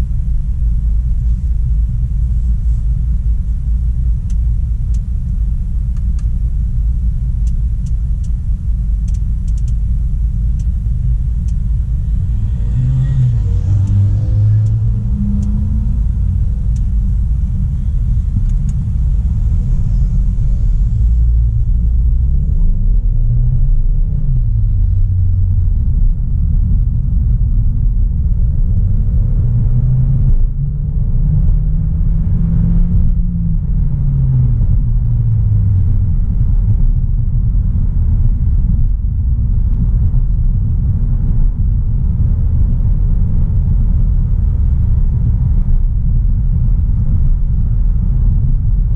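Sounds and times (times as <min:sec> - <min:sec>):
road rumble: 0:00.0 - 0:48.9
car engine pulling: 0:09.0 - 0:23.2.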